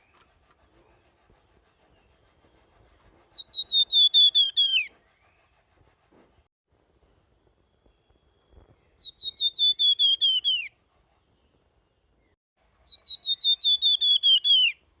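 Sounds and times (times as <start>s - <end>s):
songbird whistling high notes: 3.3s - 4.9s, 9.0s - 10.7s, 12.8s - 14.8s.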